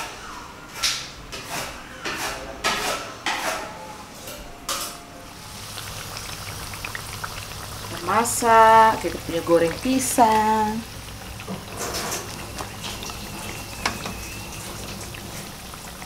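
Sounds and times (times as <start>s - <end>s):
fritters sizzling in oil: 5.4s - 16.0s.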